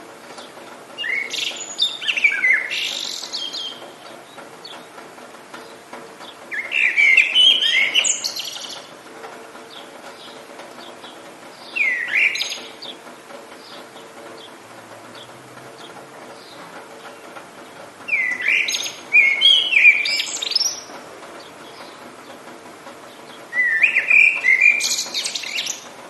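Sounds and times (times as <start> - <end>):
rain hiss: 0.0 - 26.0
songbird whistling: 1.0 - 3.8, 6.5 - 8.8, 11.7 - 13.0, 18.1 - 20.9, 23.5 - 25.8.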